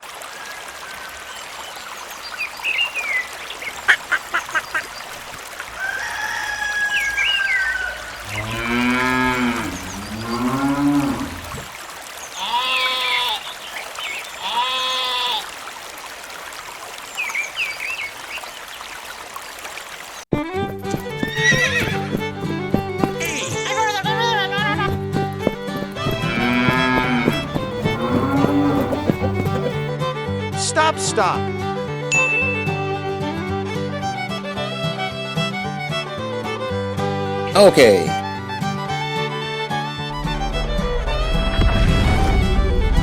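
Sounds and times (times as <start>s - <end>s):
birds chirping: 0.8s - 5.4s, 6.8s - 11.6s, 24.7s - 29.9s
cow mooing: 8.2s - 11.6s, 25.7s - 29.9s
music: 20.3s - 43.0s.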